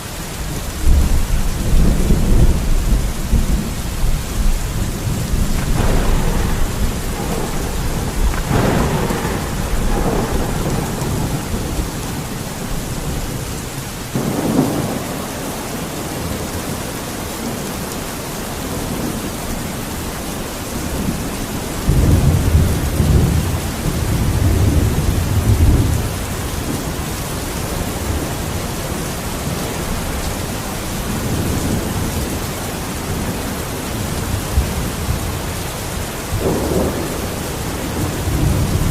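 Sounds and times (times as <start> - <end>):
heavy rain hissing: 0.0 - 38.9
thunder rumbling: 0.6 - 17.9, 20.7 - 38.9
sharp thunder crack: 0.8 - 15.1.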